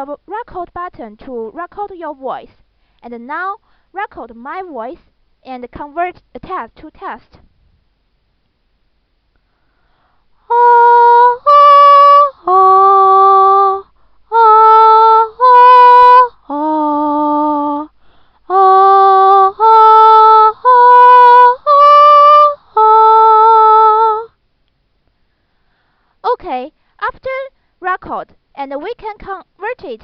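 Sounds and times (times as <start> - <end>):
person singing slow melody: 10.4 - 24.4.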